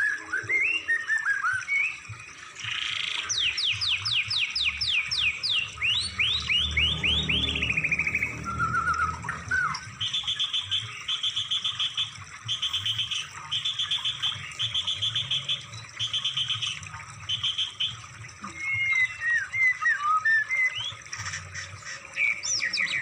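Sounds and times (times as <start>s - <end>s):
songbird trills: 2.6s - 23.0s
low hum: 5.7s - 10.5s.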